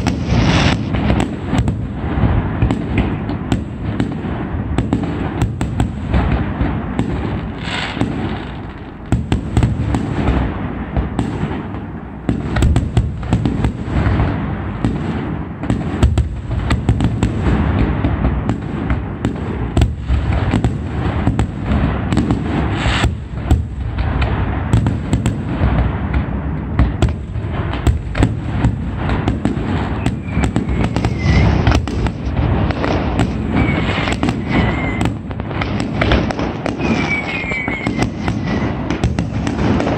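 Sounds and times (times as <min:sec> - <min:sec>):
fireworks bangs and crackling: 0:00.0 - 0:39.9
whistles of rising shells: 0:30.0 - 0:31.8, 0:33.4 - 0:35.2, 0:36.7 - 0:38.8.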